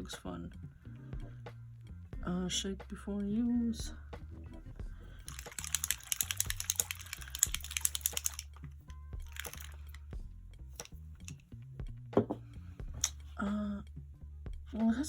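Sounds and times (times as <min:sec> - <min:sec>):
small bottle shaken rattling: 0:05.2 - 0:10.1, 0:10.7 - 0:11.4.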